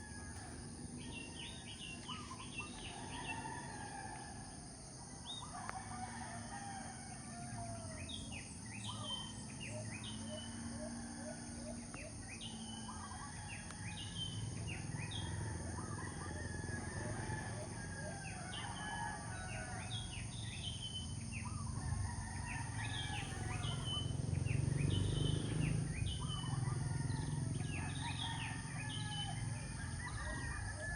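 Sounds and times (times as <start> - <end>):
roosters crowing: 0.0 - 8.6, 12.5 - 30.9
small birds chirping: 22.7 - 29.8.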